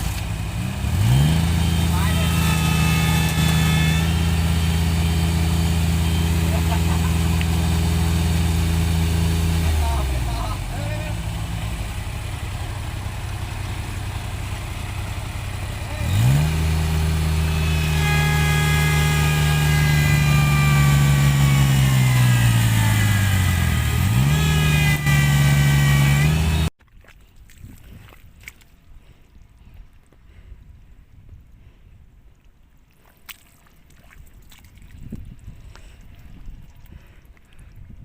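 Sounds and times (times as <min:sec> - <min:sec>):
tractor engine revving: 0:00.0 - 0:26.7.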